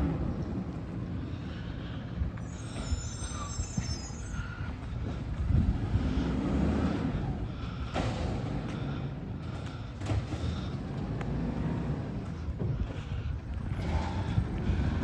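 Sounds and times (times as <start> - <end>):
garbage truck rumbling: 0.0 - 15.0
high-pitched squeal: 2.4 - 4.8.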